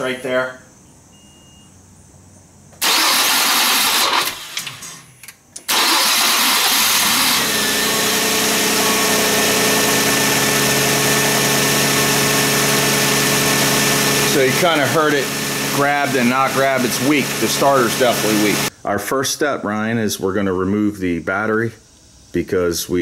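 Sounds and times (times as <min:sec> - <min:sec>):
weak starter motor cranking: 0:02.8 - 0:05.0, 0:05.6 - 0:08.8
car engine idling: 0:05.6 - 0:18.7.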